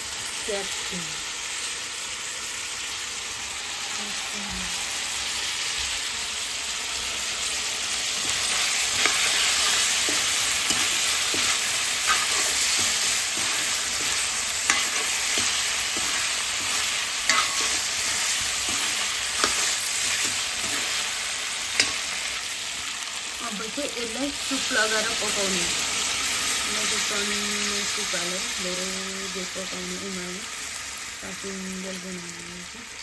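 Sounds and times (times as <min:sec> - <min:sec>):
vegetables sizzling in a pan: 0:00.0 - 0:33.0
spoon tapping and scraping pan: 0:08.2 - 0:21.0, 0:21.7 - 0:22.2.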